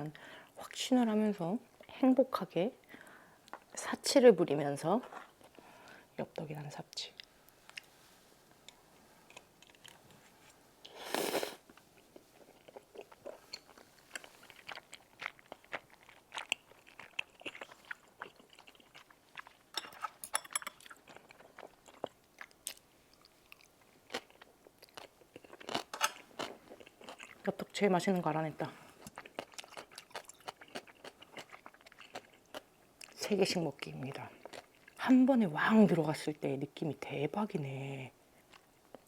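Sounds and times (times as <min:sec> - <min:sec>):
wet chewing sounds: 0:11.7 - 0:27.5, 0:29.0 - 0:33.2, 0:34.0 - 0:35.0.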